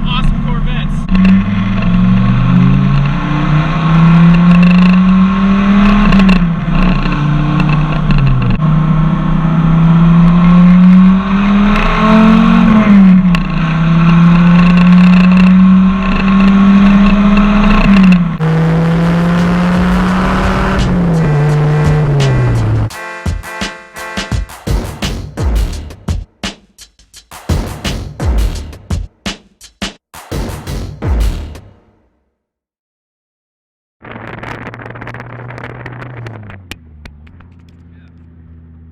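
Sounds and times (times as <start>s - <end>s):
car engine shifting gears: 0.0s - 22.9s, 34.1s - 38.9s.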